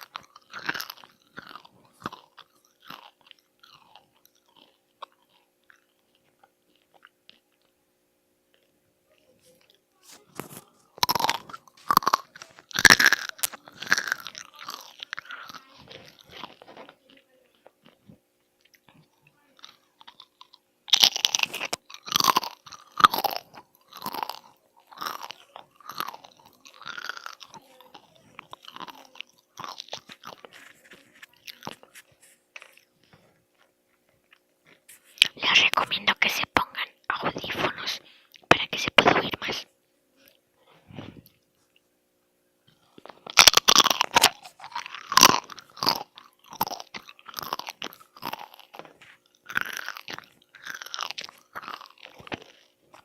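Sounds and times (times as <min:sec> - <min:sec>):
person crunching and chewing food: 0:00.0 - 0:07.8, 0:08.5 - 0:41.8, 0:42.7 - 0:53.0.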